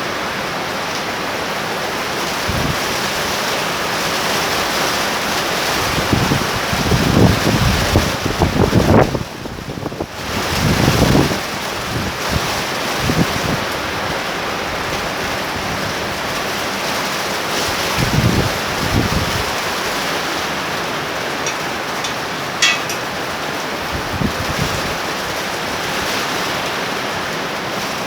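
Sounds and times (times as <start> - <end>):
torrential rain hissing: 0.0 - 28.0
wind buffeting microphone: 5.7 - 14.2, 21.2 - 26.1.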